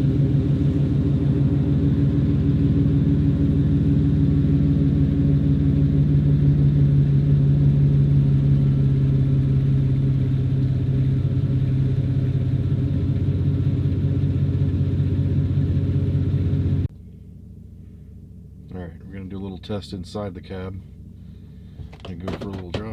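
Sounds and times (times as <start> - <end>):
truck engine idling with deep rumble: 0.0 - 22.9.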